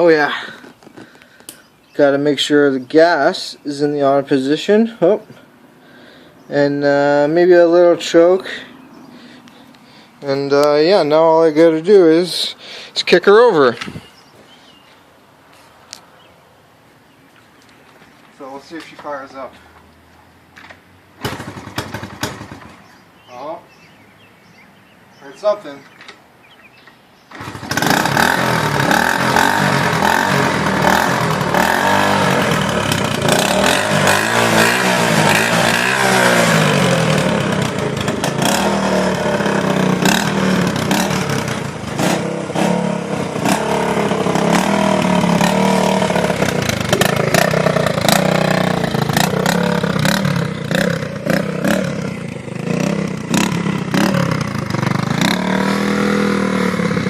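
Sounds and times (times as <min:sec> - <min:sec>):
motorcycle engine starting and revving: 0:10.2 - 0:14.1, 0:20.5 - 0:57.0.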